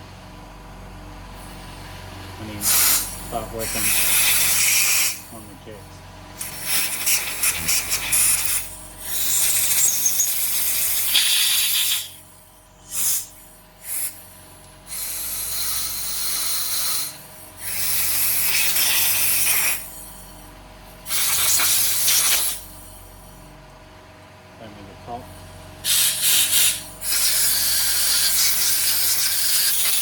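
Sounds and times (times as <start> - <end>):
compressed air hissing blasts: 2.6 - 5.4, 6.4 - 20.4, 21.0 - 23.2, 25.8 - 30.0.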